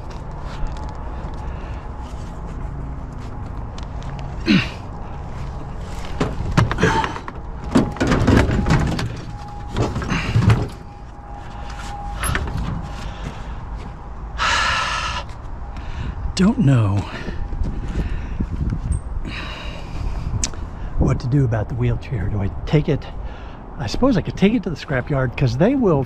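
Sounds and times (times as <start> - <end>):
steady low hum: 0.0 - 25.9
metal scrap clanks and bangs: 6.0 - 11.1.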